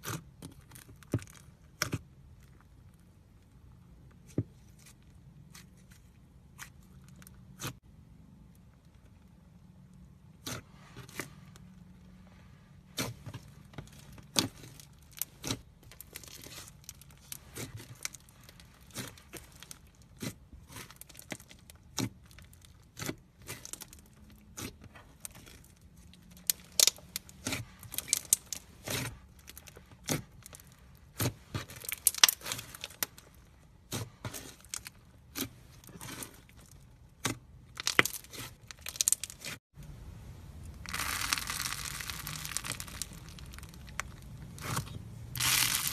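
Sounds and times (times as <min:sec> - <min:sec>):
slime crackling and popping: 0:13.0 - 0:39.6, 0:40.6 - 0:45.9.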